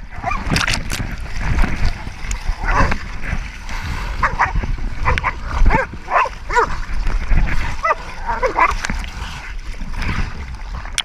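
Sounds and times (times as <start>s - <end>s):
dogs barking: 4.2s - 6.8s, 7.8s - 8.8s.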